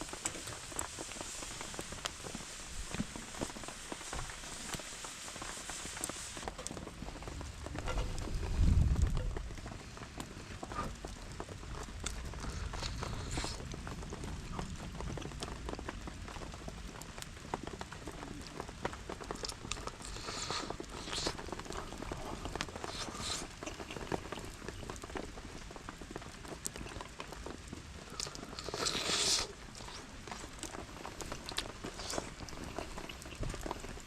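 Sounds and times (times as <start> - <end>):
fire hissing bursts: 0.0 - 6.5, 19.9 - 23.6, 28.1 - 30.5
campfire crackling and popping: 0.0 - 34.0
rain falling: 0.0 - 34.0.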